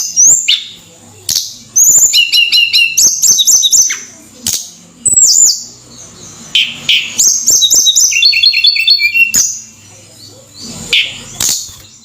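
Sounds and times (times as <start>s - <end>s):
bird singing high whistled notes: 6.5s - 9.7s.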